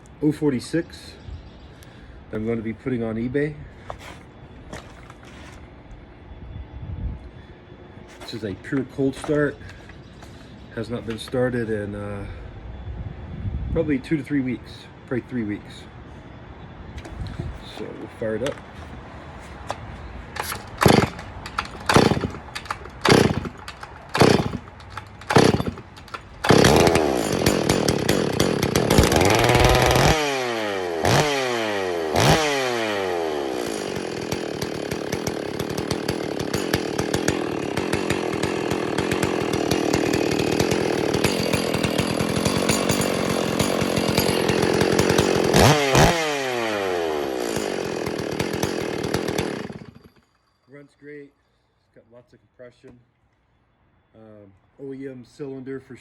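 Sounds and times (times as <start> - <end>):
chainsaw starter pulls: 8.2 - 11.4, 17.0 - 50.2
chainsaw engine revving and idling: 20.4 - 50.2.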